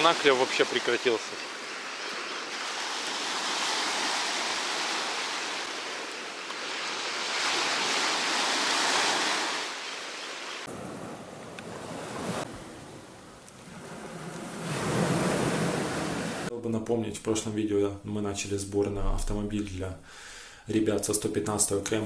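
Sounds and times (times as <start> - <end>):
sea surf breaking on beach: 0.0 - 16.5.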